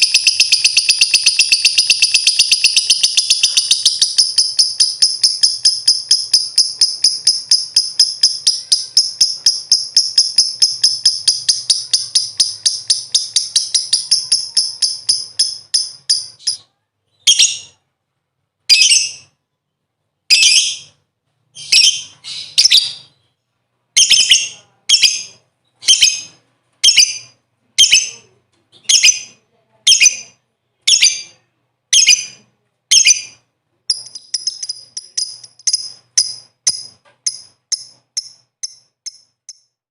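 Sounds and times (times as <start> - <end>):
lovebird chattering trill: 0.0 - 16.6, 24.0 - 28.2, 28.8 - 39.7.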